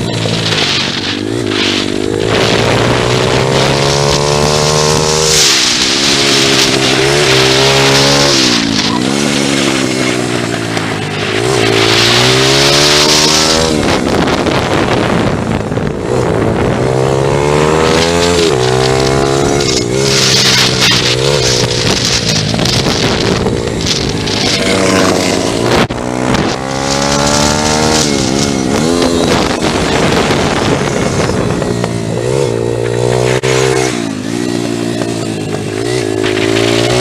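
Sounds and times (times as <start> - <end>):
motorbike engine revving: 0.0 - 37.0
wind rushing over microphone: 0.0 - 37.0.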